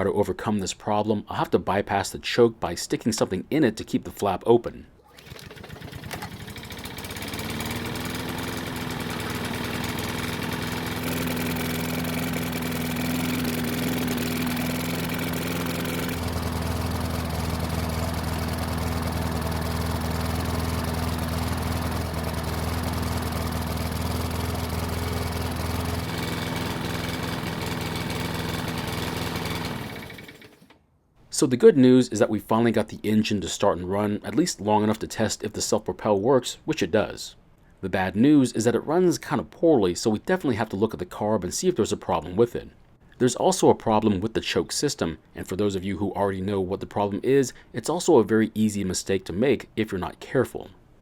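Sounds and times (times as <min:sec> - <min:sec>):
lawn mower engine running: 0:05.0 - 0:30.8.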